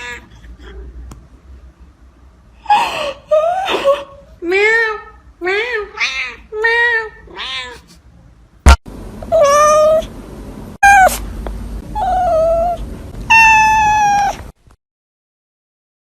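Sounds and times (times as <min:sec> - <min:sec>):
cat meowing loudly: 0:10.8 - 0:11.2, 0:12.0 - 0:14.4.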